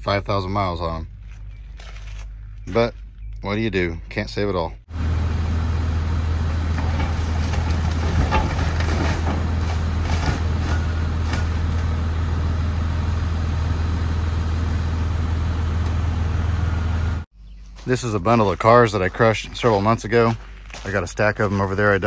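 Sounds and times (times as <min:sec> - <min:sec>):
truck engine droning: 0:00.0 - 0:17.3
knocks and rattles: 0:06.7 - 0:12.0.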